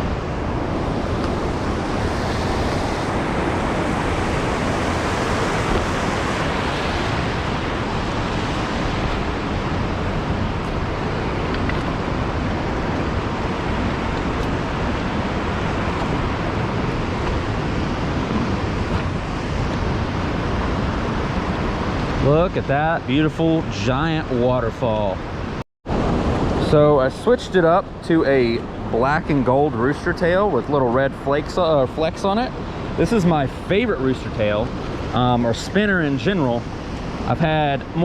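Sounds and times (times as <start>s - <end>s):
waterfall roaring: 0.0s - 24.6s.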